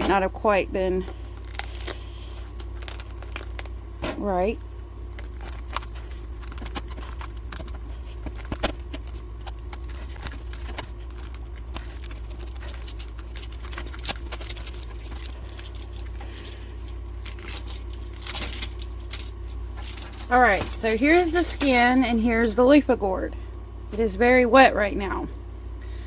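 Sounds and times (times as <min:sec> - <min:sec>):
steady low hum: 0:00.0 - 0:26.0
gourd skin peeling crackles: 0:01.3 - 0:03.8, 0:05.2 - 0:22.1.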